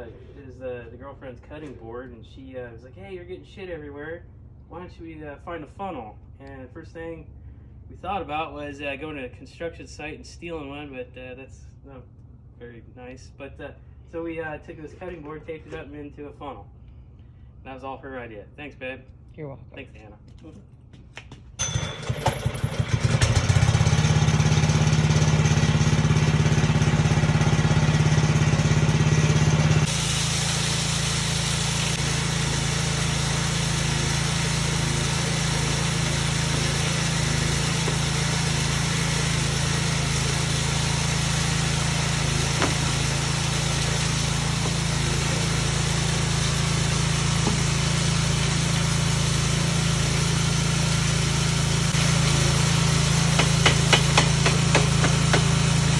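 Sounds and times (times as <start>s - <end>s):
ore crusher motor humming: 21.6s - 55.9s.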